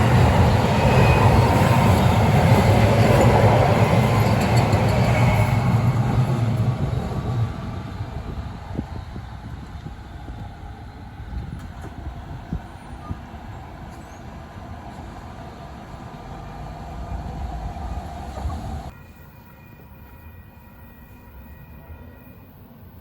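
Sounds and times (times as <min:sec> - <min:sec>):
light rail train rumble: 0:00.0 - 0:23.0.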